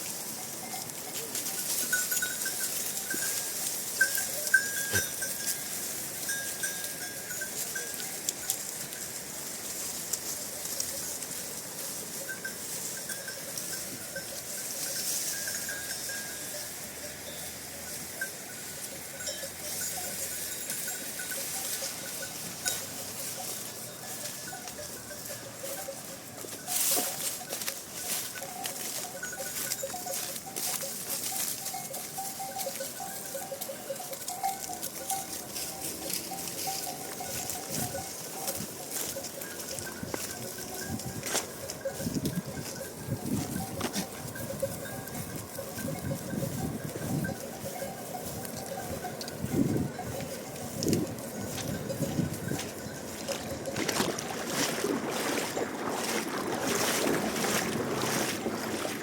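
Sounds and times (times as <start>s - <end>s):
steady outdoor hiss: 0.0s - 53.5s
livestock bells tinkling: 0.0s - 59.0s.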